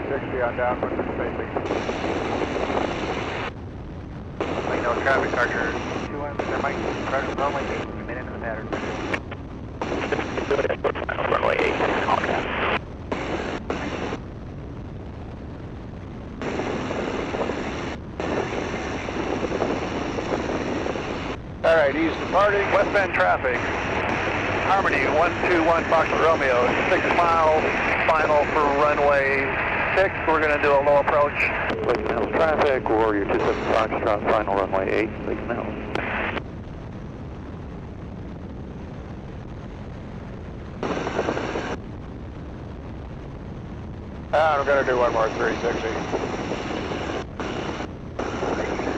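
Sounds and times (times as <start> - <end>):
biplane engine and wind noise: 0.0 - 48.9
radio static burst: 0.3 - 3.6, 4.4 - 14.2, 16.4 - 36.5, 40.8 - 41.8, 44.4 - 48.9.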